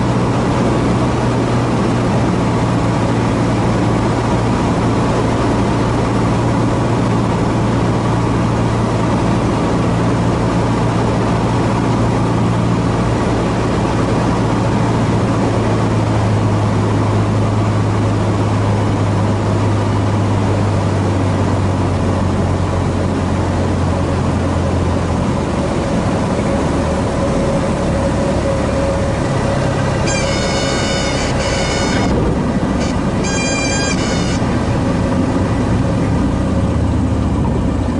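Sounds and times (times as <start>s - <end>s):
light aircraft engine and propeller: 0.0s - 37.9s
air noise: 25.4s - 37.9s.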